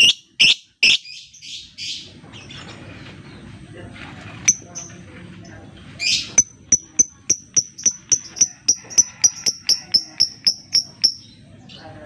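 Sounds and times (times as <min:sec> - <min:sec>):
bird chirping sharply: 0:00.0 - 0:02.0.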